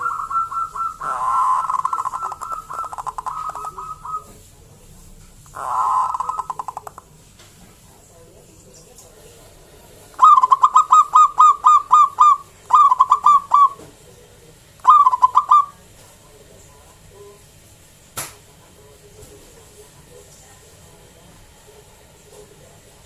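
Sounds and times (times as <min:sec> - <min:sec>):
dove cooing: 0:00.0 - 0:04.4, 0:05.5 - 0:07.0, 0:10.2 - 0:13.9, 0:14.8 - 0:15.8.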